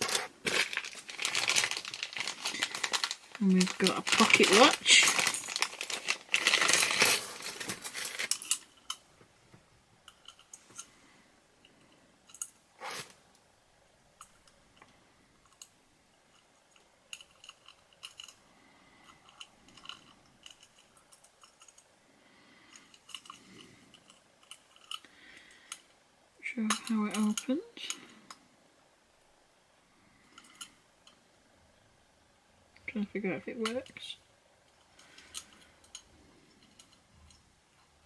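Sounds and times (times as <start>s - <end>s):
plastic packaging crinkling and tearing: 0.0s - 8.7s.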